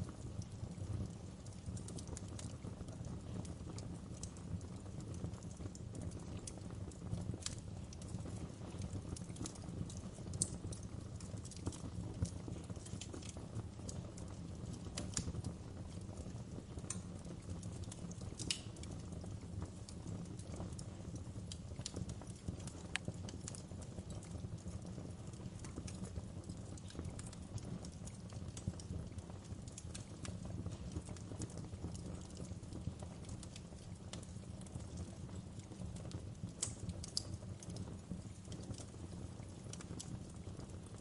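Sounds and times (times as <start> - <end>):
fire crackling and popping: 0.0 - 41.0.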